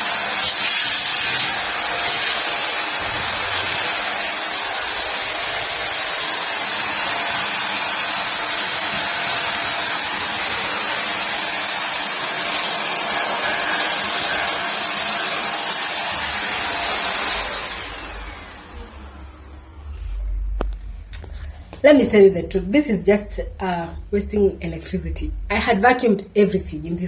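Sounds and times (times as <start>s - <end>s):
handheld vacuum cleaner running: 0.0s - 20.8s.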